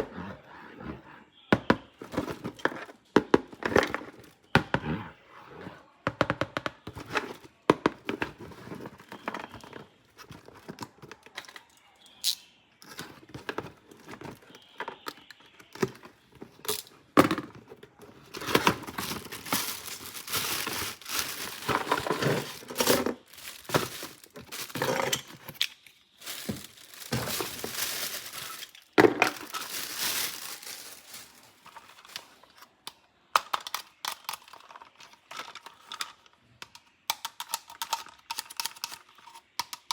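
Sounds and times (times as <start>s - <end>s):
plastic and cardboard crinkling: 1.6s - 4.5s, 6.2s - 12.0s, 12.8s - 32.8s
packaging rustling: 15.7s - 32.6s
clicks and knocks of parts: 32.9s - 39.9s.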